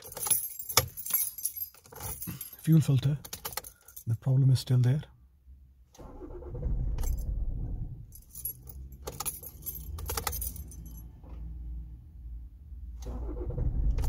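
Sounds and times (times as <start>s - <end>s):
keys jangling: 0.0s - 4.2s, 8.1s - 11.1s
diesel engine cranking on starter: 6.0s - 8.0s, 12.9s - 14.0s.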